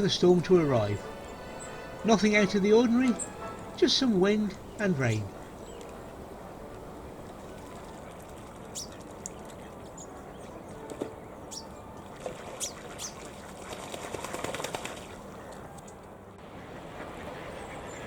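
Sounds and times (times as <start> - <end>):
steady low rush: 0.0 - 7.5
birds chirping: 0.0 - 7.8, 8.6 - 11.9
bird clicking notes: 3.0 - 3.7.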